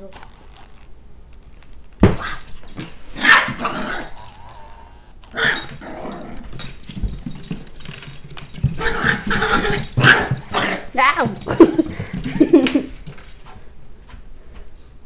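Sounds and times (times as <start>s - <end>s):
puppy growling: 3.1s - 6.7s, 8.6s - 11.9s
puppy barking: 3.2s - 3.7s.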